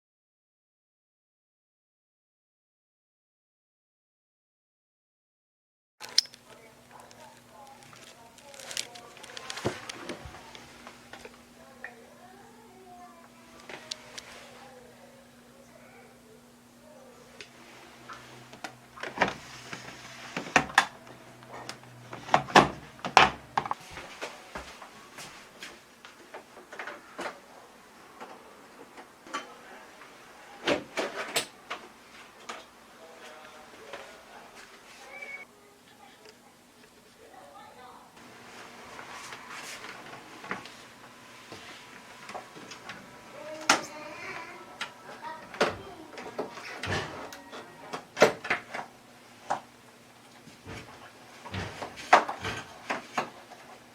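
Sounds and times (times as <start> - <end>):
knocks clicks and scrapes of parts: 6.0 - 10.6
faint steady hum: 6.0 - 53.9.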